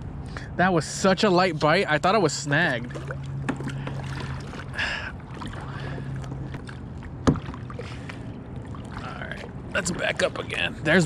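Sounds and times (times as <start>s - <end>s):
steady low hum: 0.0s - 11.0s
faint water splashing: 1.7s - 11.0s.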